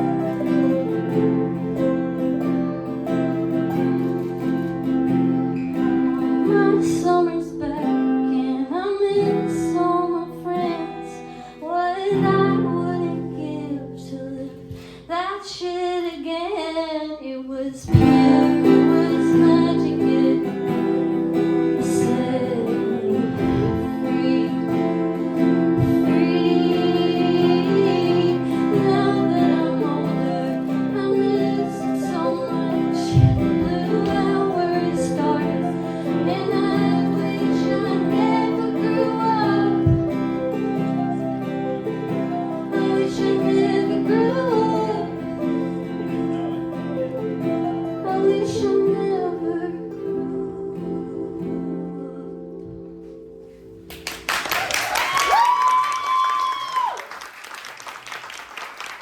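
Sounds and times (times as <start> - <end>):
woman singing: 0.0 - 53.2
acoustic guitar: 0.0 - 59.0.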